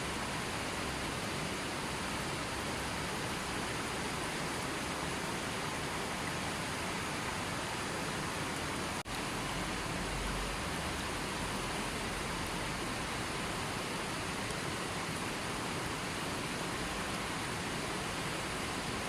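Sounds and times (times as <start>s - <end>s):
rushing water: 0.0s - 19.0s.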